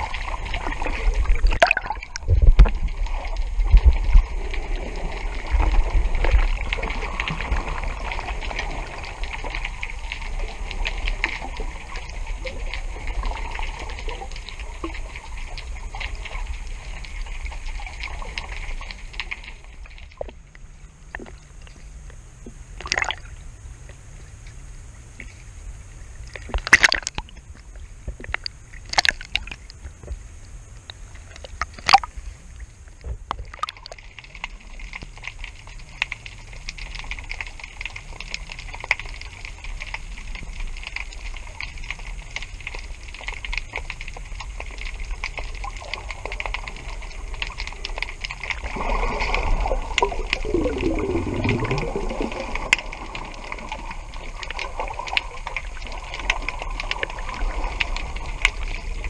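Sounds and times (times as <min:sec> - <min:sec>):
water sloshing against hull: 0:00.0 - 0:36.9.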